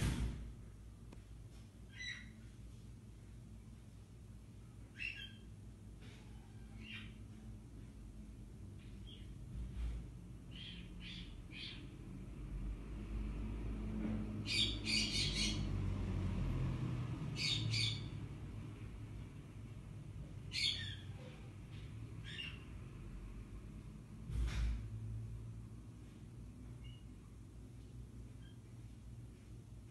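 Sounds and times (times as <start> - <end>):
street traffic rumble: 7.3 - 28.3.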